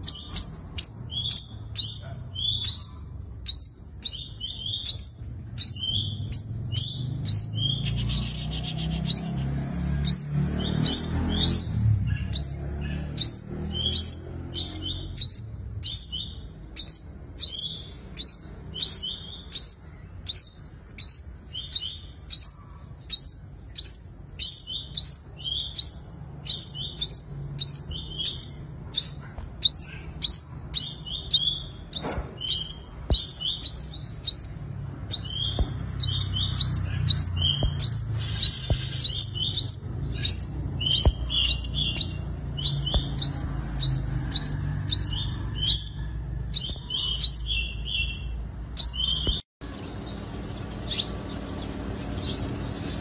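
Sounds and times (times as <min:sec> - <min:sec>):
sunbird chirping: 0:00.0 - 0:53.0.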